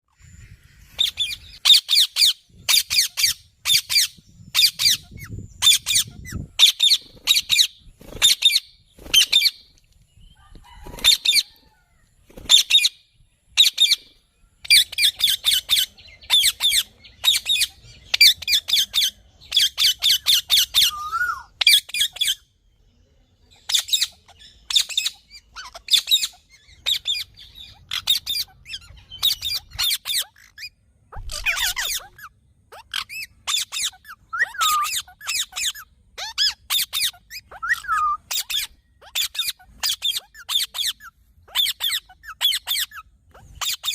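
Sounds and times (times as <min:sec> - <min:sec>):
parrot screeching: 0:20.0 - 0:22.2, 0:27.9 - 0:43.9.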